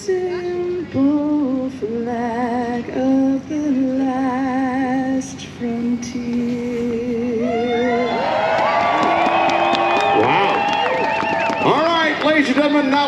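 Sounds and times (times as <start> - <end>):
woman singing with vibrato: 0.0 - 8.5.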